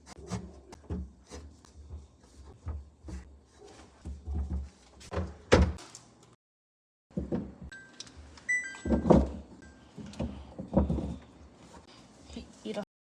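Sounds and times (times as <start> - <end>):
containers knocking and clunking: 8.8 - 11.3.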